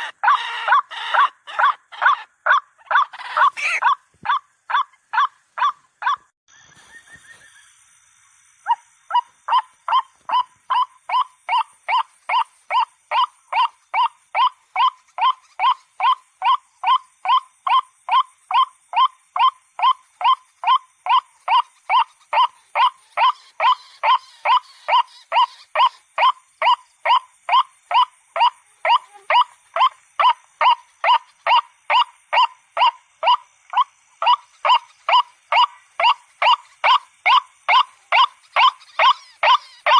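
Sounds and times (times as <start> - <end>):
waterhen calling: 0.0 - 6.2, 22.0 - 39.9.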